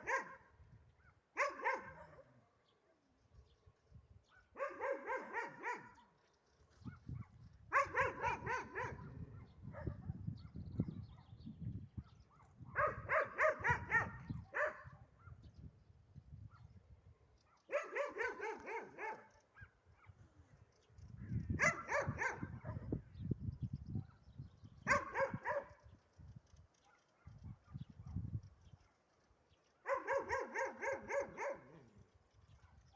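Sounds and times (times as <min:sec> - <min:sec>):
dog barking: 0:00.0 - 0:02.7, 0:04.3 - 0:06.0, 0:06.8 - 0:11.3, 0:12.0 - 0:15.5, 0:17.5 - 0:20.2, 0:21.6 - 0:22.9, 0:24.9 - 0:25.8, 0:26.8 - 0:28.2, 0:29.8 - 0:31.9.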